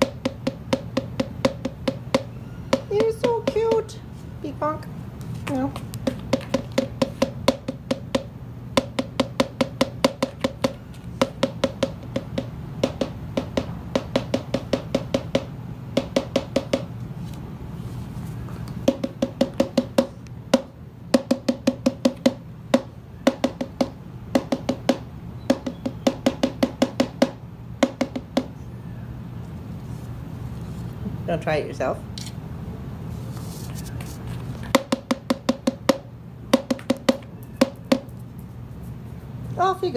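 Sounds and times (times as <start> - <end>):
cockatoo tapping beak on hollow object: 0.0 - 4.0, 5.4 - 17.0, 18.7 - 28.6, 34.7 - 38.3
steady low hum: 0.0 - 39.9.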